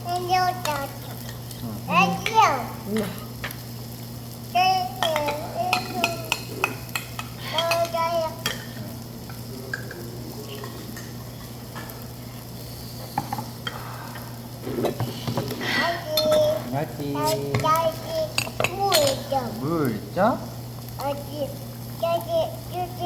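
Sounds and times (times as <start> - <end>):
toddler vocal sounds: 0.0 - 1.2, 1.9 - 3.3, 4.5 - 8.8, 14.6 - 19.6
meat sizzling on a grill: 0.0 - 23.0
steady low hum: 0.0 - 23.0.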